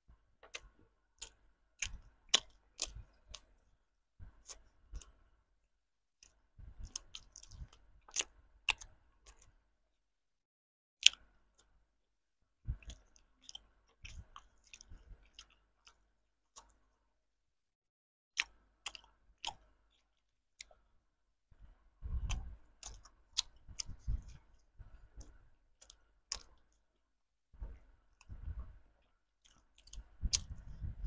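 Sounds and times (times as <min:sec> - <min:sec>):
biting and chewing candy: 0:00.4 - 0:03.6, 0:06.2 - 0:09.6, 0:12.7 - 0:16.9, 0:18.4 - 0:20.9, 0:21.6 - 0:27.0, 0:27.6 - 0:31.0
mouth clicks and crunches: 0:00.4 - 0:03.6, 0:04.3 - 0:05.2, 0:06.2 - 0:09.6, 0:11.0 - 0:11.7, 0:12.7 - 0:16.8, 0:18.4 - 0:20.8, 0:22.1 - 0:27.0, 0:27.6 - 0:31.0.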